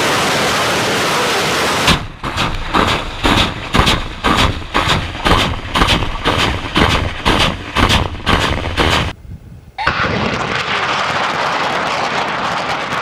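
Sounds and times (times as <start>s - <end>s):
rocket launch blasts: 9.8s - 13.0s.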